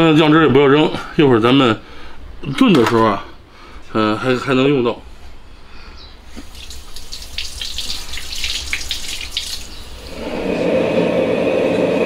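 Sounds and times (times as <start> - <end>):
tap water running: 6.4 - 12.0.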